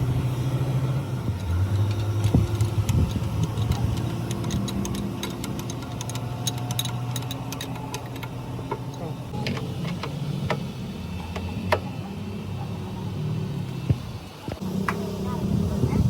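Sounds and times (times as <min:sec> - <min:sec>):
sharp metallic clicks and taps: 0:01.4 - 0:10.6.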